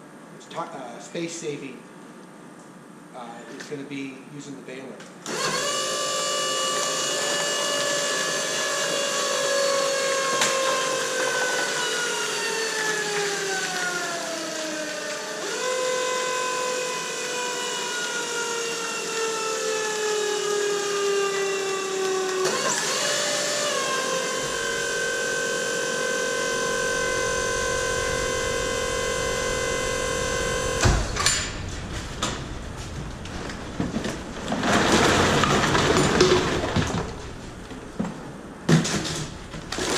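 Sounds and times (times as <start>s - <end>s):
baler motor whining: 5.3s - 35.9s
machine clunk: 27.2s - 39.9s.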